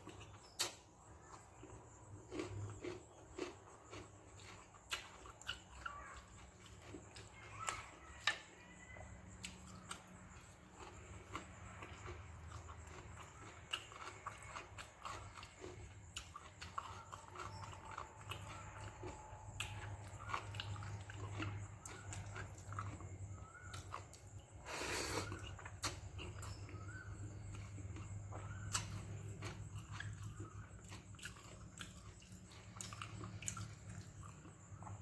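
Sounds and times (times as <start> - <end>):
person chewing: 0.0 - 35.0
steady low hum: 9.0 - 35.0.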